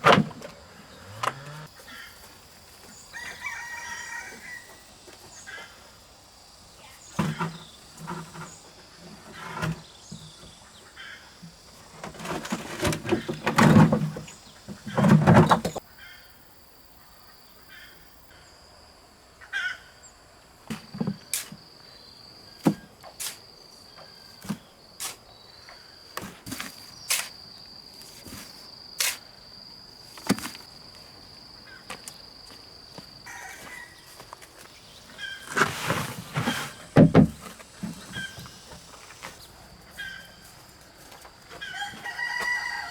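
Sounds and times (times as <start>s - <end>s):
high insect drone: 23.4s - 35.4s.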